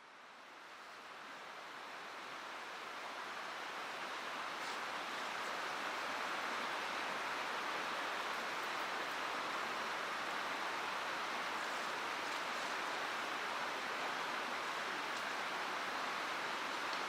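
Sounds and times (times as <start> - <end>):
stream water rushing: 0.2 - 17.0.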